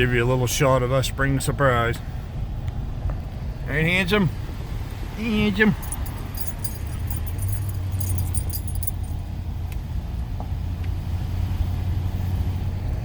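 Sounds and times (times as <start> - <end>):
metallic jingling: 5.6 - 9.2.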